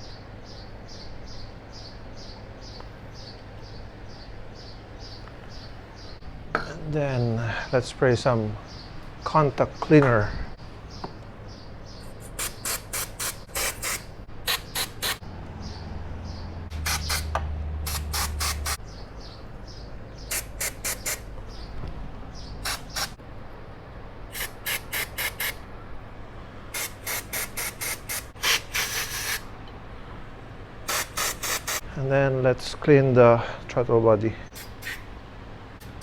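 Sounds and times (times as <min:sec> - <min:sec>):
aerosol spray hissing: 0:12.3 - 0:15.2, 0:16.7 - 0:17.3, 0:17.9 - 0:18.8, 0:20.3 - 0:21.3, 0:22.6 - 0:23.2, 0:24.3 - 0:25.6, 0:26.8 - 0:29.4, 0:30.9 - 0:31.8, 0:34.5 - 0:35.1.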